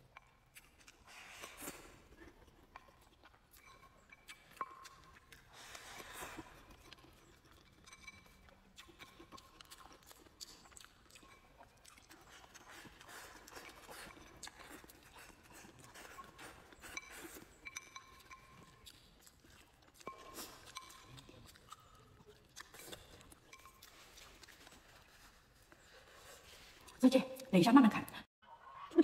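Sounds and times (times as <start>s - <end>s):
person chewing: 0.1s - 27.0s.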